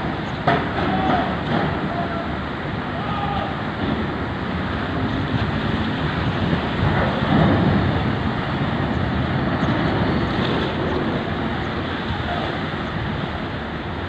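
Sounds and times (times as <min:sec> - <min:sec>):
heavy engine rumble: 0:00.0 - 0:14.0
wind on microphone: 0:03.3 - 0:14.0.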